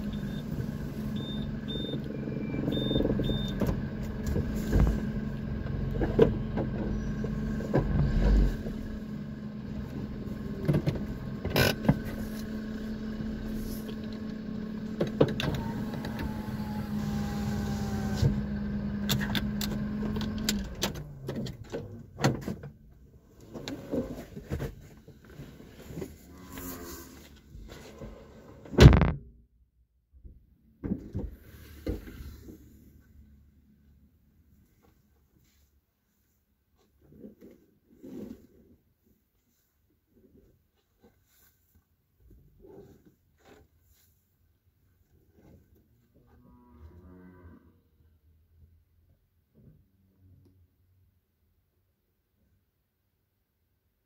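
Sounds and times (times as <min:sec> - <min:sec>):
car engine idling: 0:00.0 - 0:22.2.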